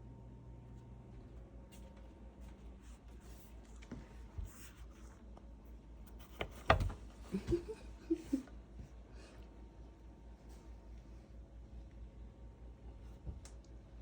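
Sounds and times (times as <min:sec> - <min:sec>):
soft scratching and rustling: 0:01.6 - 0:05.3.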